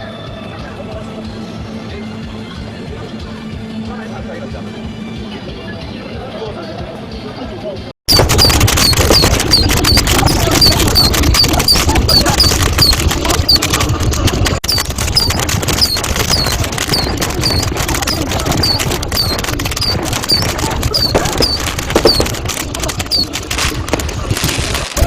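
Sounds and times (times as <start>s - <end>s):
fireworks crackling and popping: 8.1s - 25.0s.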